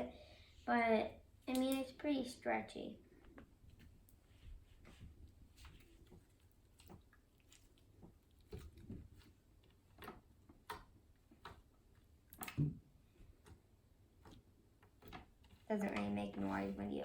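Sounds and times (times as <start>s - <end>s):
slime putty squishing: 3.7s - 15.7s.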